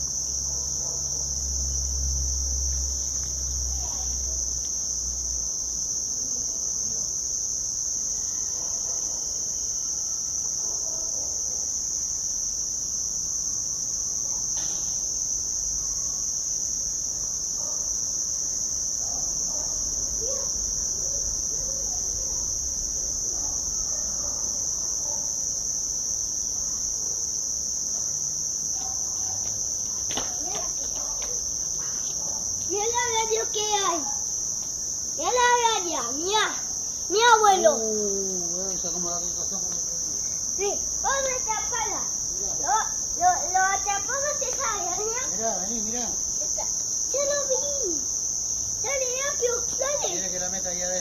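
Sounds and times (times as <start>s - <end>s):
crickets trilling: 0.0s - 51.0s.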